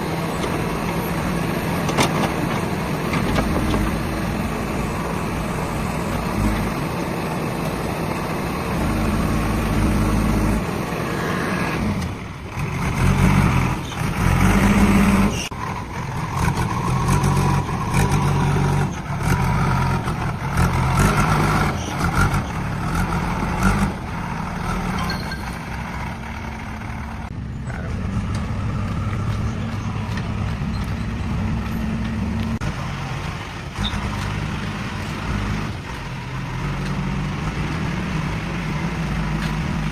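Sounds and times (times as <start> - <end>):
heavy diesel engine running: 0.0 - 39.9
engine knocks: 0.4 - 4.6.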